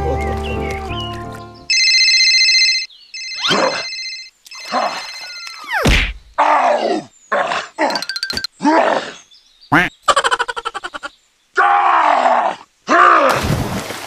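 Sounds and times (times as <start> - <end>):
electronic ringing tone: 1.7 - 5.7.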